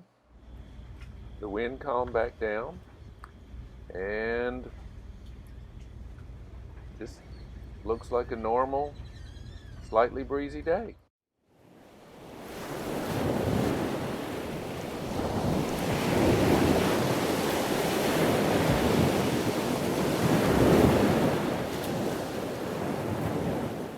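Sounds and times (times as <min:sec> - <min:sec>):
wind gusting on microphone: 0:12.2 - 0:23.9
water washing: 0:12.5 - 0:23.9.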